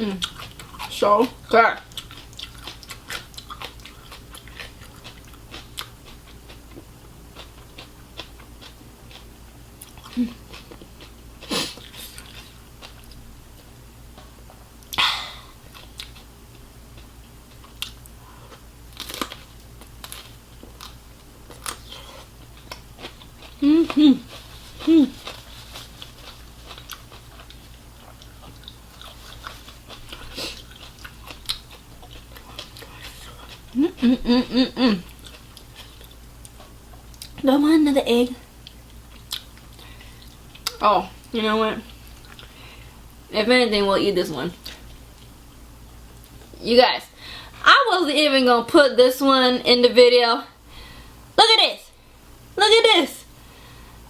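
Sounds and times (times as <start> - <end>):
chewing and biting food: 0.2 - 15.0, 15.7 - 16.3, 17.0 - 34.3, 35.0 - 37.4, 38.6 - 40.8.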